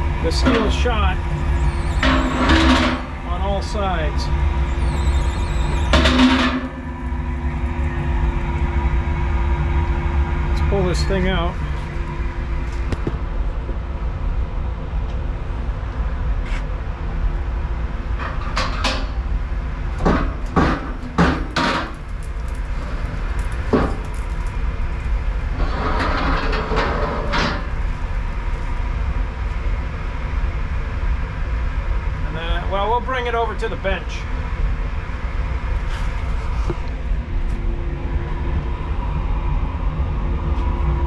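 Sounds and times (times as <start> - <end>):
metal rattling: 0.0 - 8.8
low machine hum: 0.0 - 41.0.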